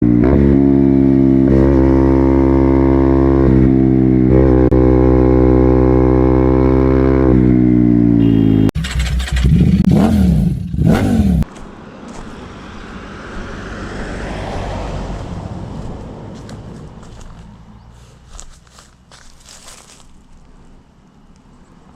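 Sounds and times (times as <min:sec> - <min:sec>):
motorcycle engine revving: 0:00.0 - 0:11.5.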